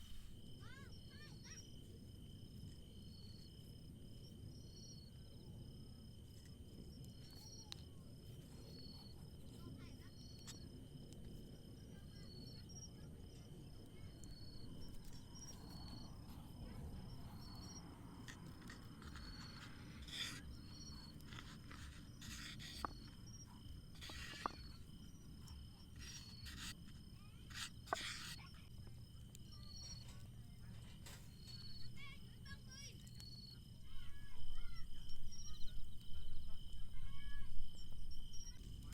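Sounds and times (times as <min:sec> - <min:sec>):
crickets chirping: 0:00.0 - 0:38.9
rustling: 0:17.2 - 0:28.4.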